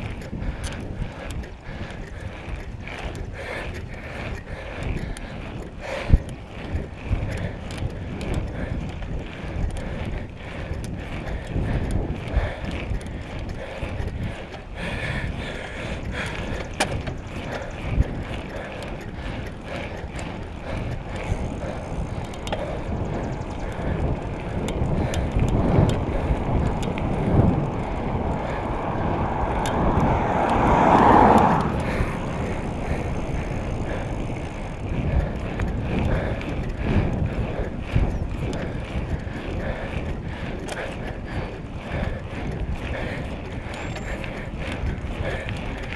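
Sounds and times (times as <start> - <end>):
bicycle tyres and drivetrain rattling: 0.0 - 45.9
wind buffeting microphone: 0.0 - 45.9.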